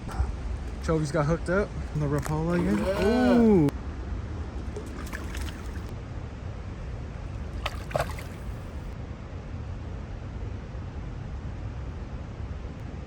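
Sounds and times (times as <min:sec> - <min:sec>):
stream water flowing: 0:00.0 - 0:03.7, 0:04.3 - 0:05.9, 0:07.3 - 0:09.0.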